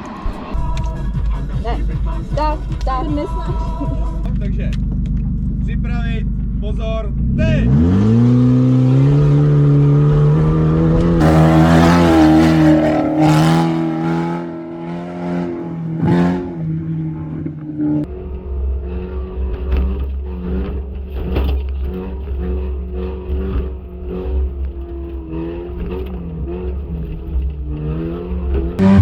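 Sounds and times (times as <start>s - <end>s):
low engine rumble: 0.1s - 7.6s
rally car engines at high revs: 4.6s - 29.0s.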